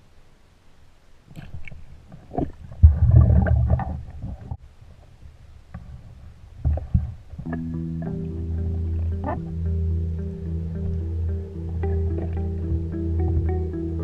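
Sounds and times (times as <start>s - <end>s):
muffled underwater rumbling: 2.2s - 14.0s
sharp underwater knocks: 11.8s - 13.7s.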